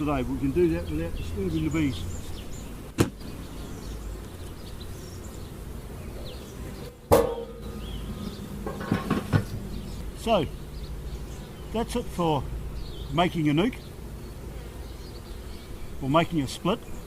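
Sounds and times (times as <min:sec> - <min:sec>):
bees buzzing: 0:00.0 - 0:17.0
hive parts knocking: 0:07.0 - 0:09.8.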